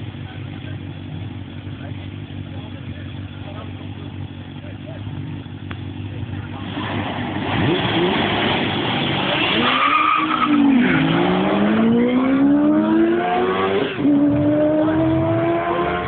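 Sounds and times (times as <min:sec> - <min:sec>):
car accelerating hard: 0:06.4 - 0:16.0
motorcycle accelerating hard: 0:06.4 - 0:16.0.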